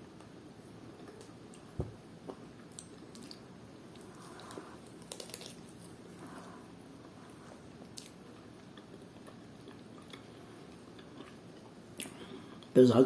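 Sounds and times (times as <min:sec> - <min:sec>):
chewing and biting food: 0:02.3 - 0:06.1, 0:07.8 - 0:12.7.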